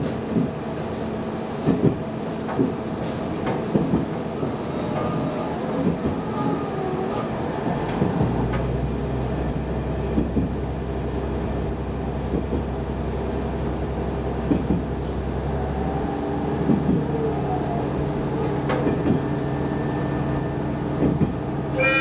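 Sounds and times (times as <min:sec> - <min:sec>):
railcar running noise: 0:00.0 - 0:22.0
deep engine drone: 0:04.2 - 0:22.0
wheels clicking over rail joints: 0:07.8 - 0:10.8, 0:16.4 - 0:19.5, 0:20.9 - 0:22.0.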